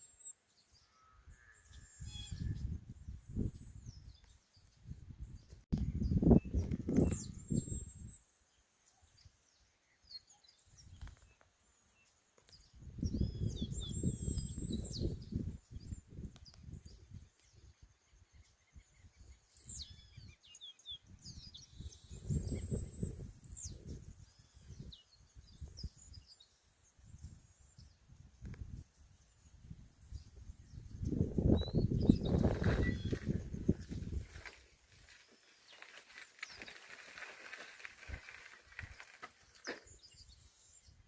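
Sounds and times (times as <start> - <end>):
birds chirping: 12.4 - 41.0.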